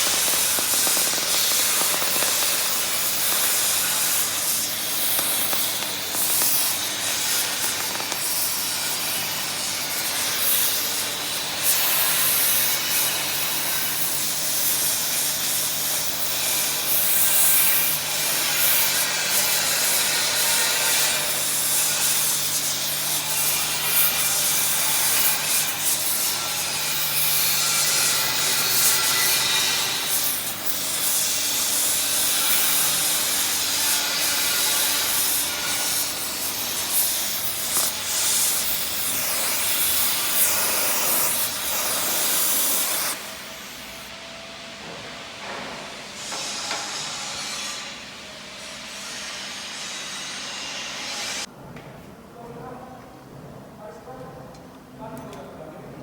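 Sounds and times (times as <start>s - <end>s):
welding arc crackling hiss: 0.0s - 44.1s.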